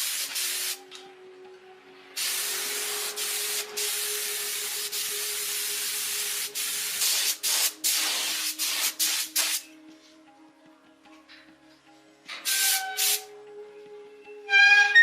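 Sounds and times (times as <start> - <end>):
compressed air hissing: 0.0 - 0.8, 2.2 - 9.7, 12.4 - 13.3.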